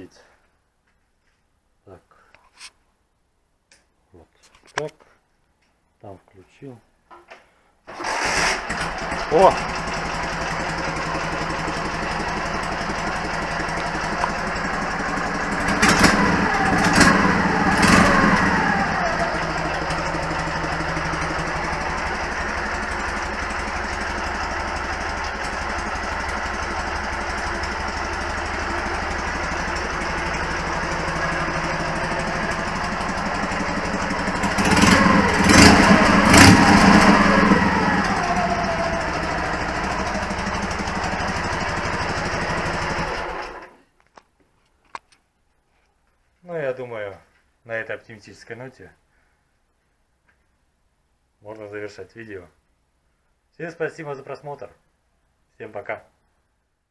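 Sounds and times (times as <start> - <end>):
motorcycle engine idling and revving: 7.9 - 43.8.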